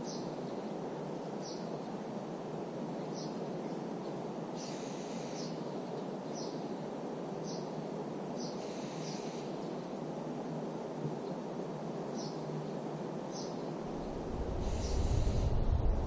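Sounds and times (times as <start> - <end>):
songbird chirping: 0.0 - 2.1, 2.9 - 10.0, 12.1 - 15.2
low background rush: 0.0 - 16.0.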